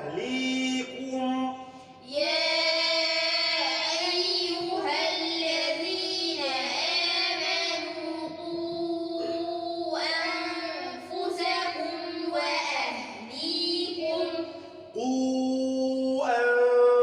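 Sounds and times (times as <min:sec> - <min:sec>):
person reciting: 0:00.0 - 0:17.0
children chanting in unison: 0:01.8 - 0:15.0.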